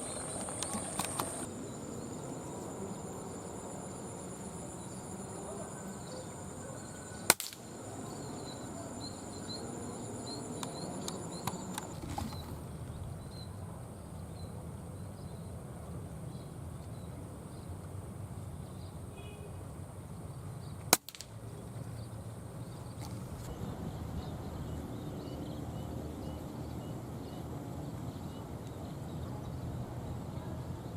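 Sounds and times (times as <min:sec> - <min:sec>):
insects buzzing: 0:00.0 - 0:13.5.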